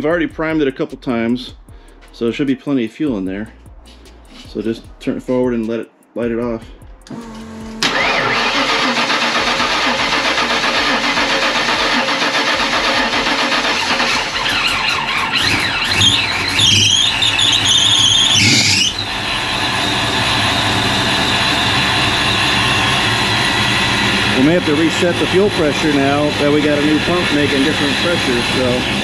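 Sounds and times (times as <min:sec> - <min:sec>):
high whine: 0:07.0 - 0:12.1, 0:13.4 - 0:29.0
car engine revving: 0:07.1 - 0:29.0.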